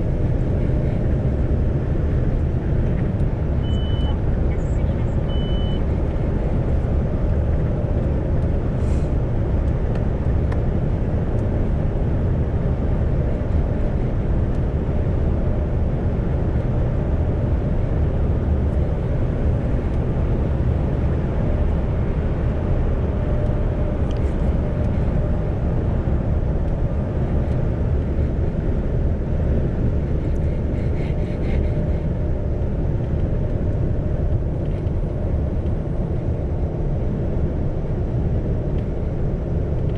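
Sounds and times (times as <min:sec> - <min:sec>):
truck engine and road noise: 0:00.0 - 0:39.9
short high beep: 0:03.6 - 0:04.2, 0:05.3 - 0:05.8.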